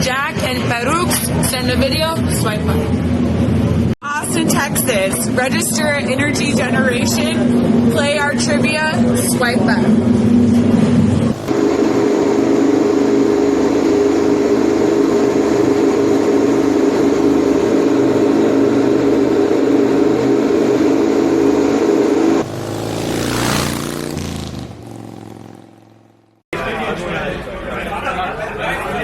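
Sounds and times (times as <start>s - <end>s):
vehicle engine running: 4.9s - 26.4s
vehicle rushing past: 22.2s - 26.4s.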